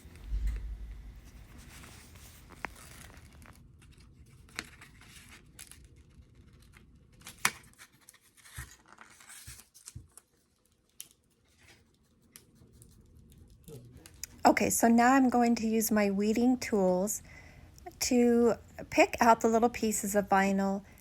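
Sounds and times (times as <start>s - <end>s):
vinyl decals peeling crackling: 1.3s - 14.3s.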